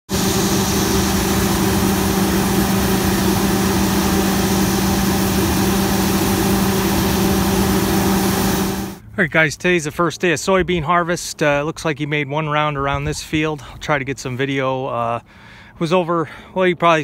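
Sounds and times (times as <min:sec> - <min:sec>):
diesel engine running: 0:00.1 - 0:09.3.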